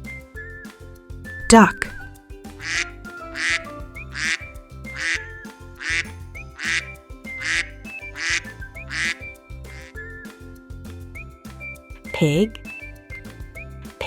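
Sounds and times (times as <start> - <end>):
background music: 0.0 - 14.0
duck quacking: 3.4 - 4.4.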